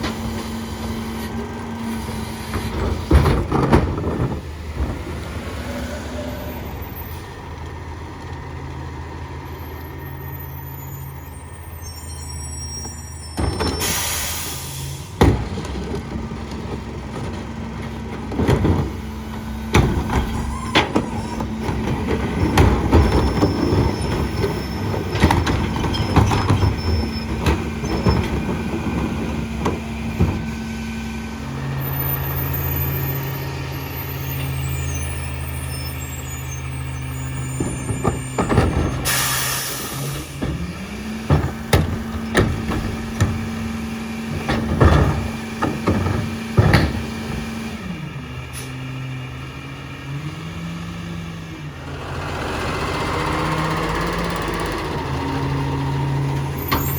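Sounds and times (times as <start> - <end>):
garbage truck engine: 0.0 - 56.9
air-brake hiss: 13.7 - 15.1, 39.0 - 40.2.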